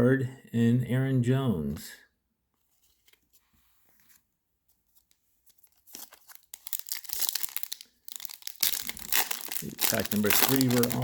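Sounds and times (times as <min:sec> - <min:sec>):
foil wrapper crinkling and tearing: 0:05.6 - 0:11.0.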